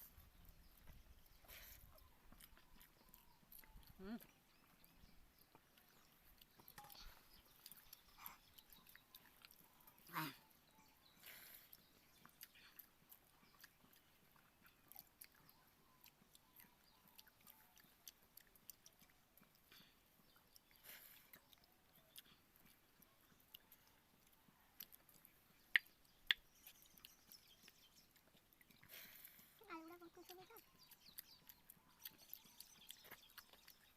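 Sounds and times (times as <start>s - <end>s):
person chewing: 0.0s - 33.9s
mouth clicks: 24.8s - 28.9s.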